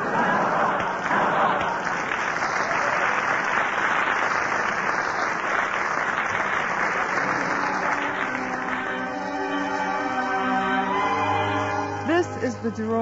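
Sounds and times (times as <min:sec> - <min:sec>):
audience applauding: 0:00.0 - 0:12.2
orchestra playing: 0:07.0 - 0:13.0.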